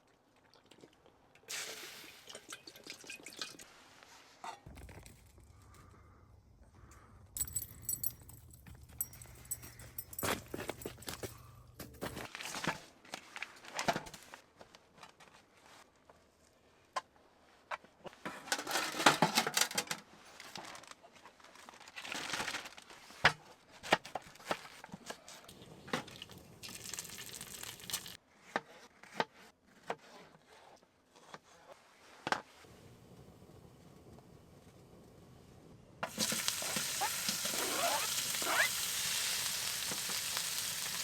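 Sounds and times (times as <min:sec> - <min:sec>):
objects knocking when set down: 0:04.6 - 0:05.7
crinkly packaging rustling: 0:20.2 - 0:23.2, 0:25.5 - 0:28.2, 0:36.1 - 0:41.0.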